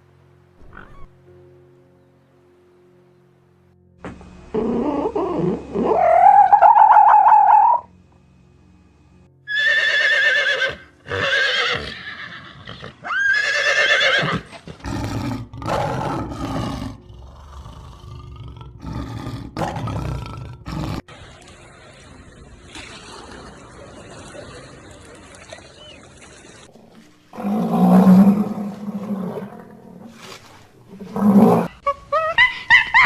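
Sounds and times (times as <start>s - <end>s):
loud animal calls: 0.6s - 1.2s, 4.6s - 7.9s
low rough animal calls: 0.6s - 1.2s, 4.5s - 7.9s, 26.6s - 32.0s.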